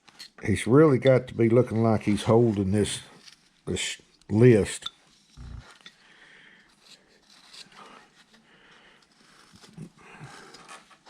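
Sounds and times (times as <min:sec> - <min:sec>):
carving tool shaving wood: 0:06.6 - 0:11.0.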